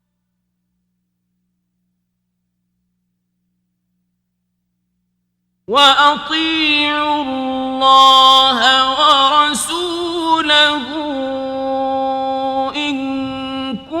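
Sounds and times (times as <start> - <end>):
man reciting melodically: 5.7 - 14.0.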